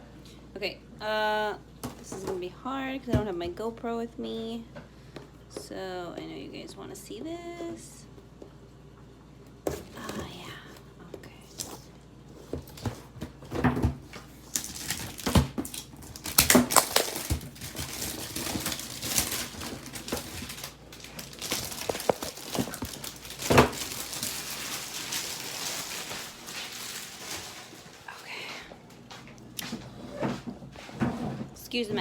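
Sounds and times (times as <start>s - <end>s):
packaging rustling: 12.4s - 28.3s.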